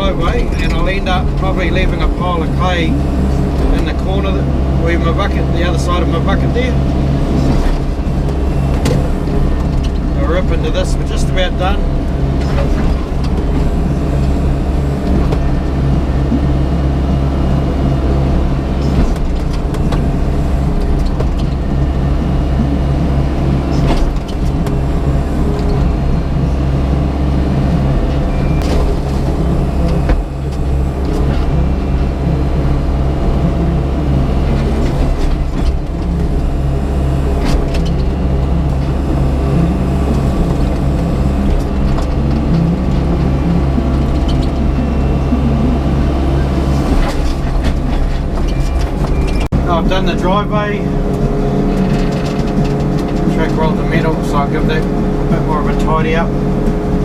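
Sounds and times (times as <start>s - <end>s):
excavator diesel engine: 0.0s - 57.0s
sharp clunks and scrapes: 51.2s - 54.9s.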